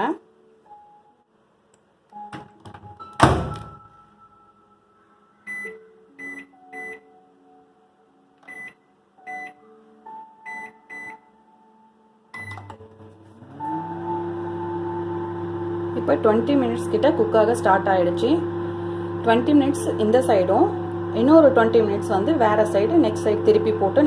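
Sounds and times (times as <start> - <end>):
oven door shutting: 3.2 - 3.8.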